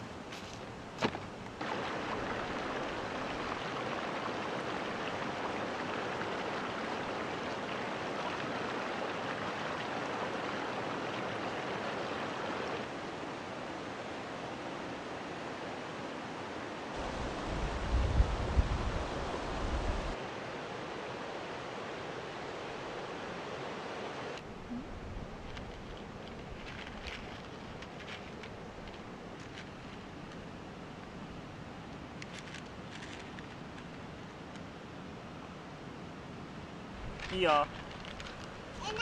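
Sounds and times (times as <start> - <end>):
stream rushing over rocks: 0.0 - 24.5, 25.7 - 37.8, 38.4 - 39.0
wind rumble on microphone: 17.0 - 20.2.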